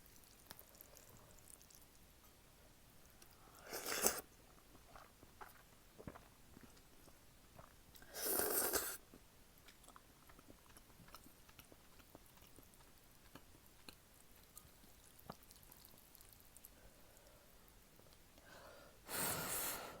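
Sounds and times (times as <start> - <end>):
close-miked chewing: 0.0 - 2.0, 3.0 - 17.4
loud noodle slurp: 3.6 - 4.3, 8.0 - 9.0.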